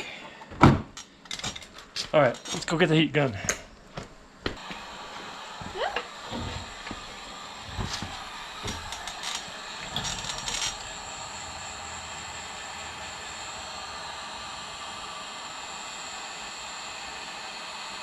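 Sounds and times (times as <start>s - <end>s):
heat gun hissing: 4.5s - 18.0s.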